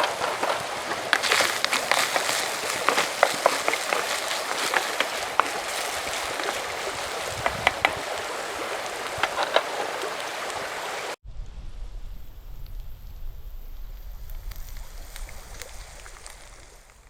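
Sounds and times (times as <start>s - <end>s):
campfire crackling: 0.0s - 11.2s, 12.3s - 17.0s
fire hissing: 12.3s - 17.0s.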